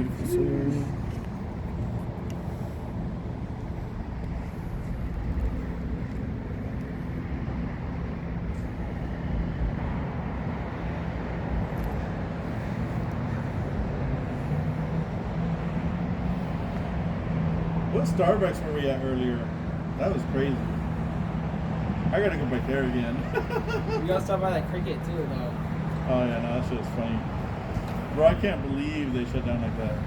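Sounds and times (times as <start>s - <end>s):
car engine hum: 0.0s - 30.0s
road noise: 0.0s - 30.0s.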